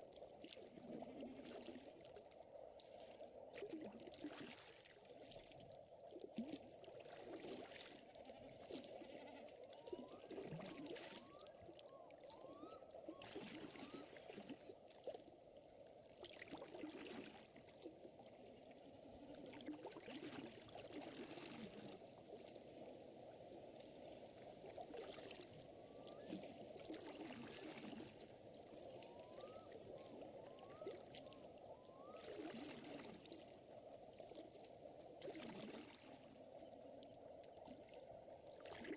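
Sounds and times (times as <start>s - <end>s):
water trickling and lapping: 0.0s - 38.9s.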